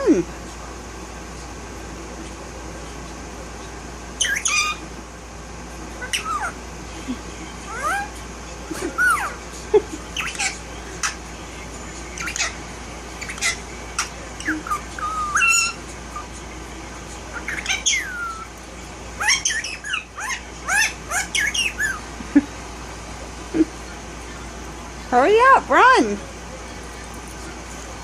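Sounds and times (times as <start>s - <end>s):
parakeet squawks and chirps: 4.2s - 4.9s, 6.0s - 6.6s, 7.6s - 8.2s, 8.8s - 9.4s, 10.1s - 11.2s, 12.1s - 16.4s, 17.3s - 18.6s, 19.2s - 22.1s.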